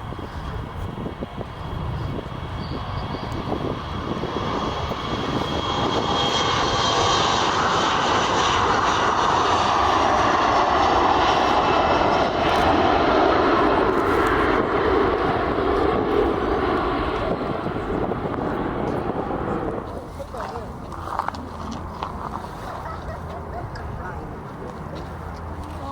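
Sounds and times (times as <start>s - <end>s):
airliner engines roaring: 0.0s - 25.9s.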